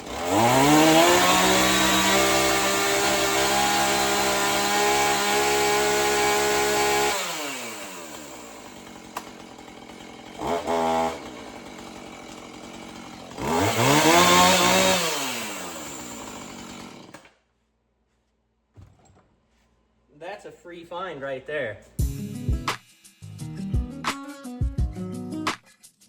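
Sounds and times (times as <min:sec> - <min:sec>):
chainsaw revving: 0:00.0 - 0:17.3.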